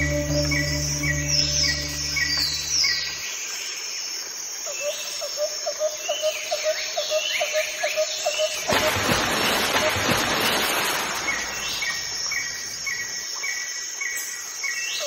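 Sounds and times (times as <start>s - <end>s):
short high chirp: 0.0s - 3.2s.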